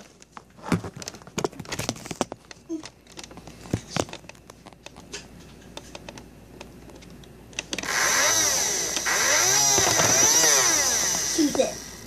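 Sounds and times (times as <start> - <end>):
small electric motor whine: 7.8 - 12.0.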